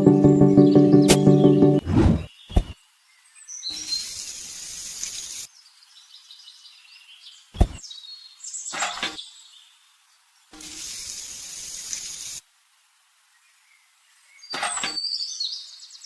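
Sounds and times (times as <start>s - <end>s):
steady hiss: 3.7s - 5.9s, 10.3s - 14.4s.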